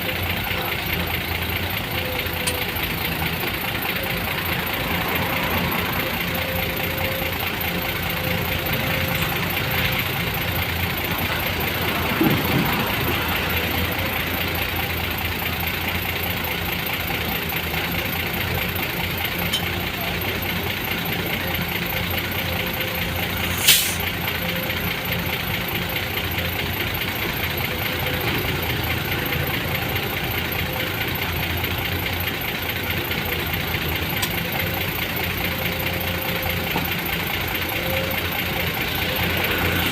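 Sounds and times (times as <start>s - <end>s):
engine idling: 0.0s - 39.9s
sharp click: 23.5s - 24.0s.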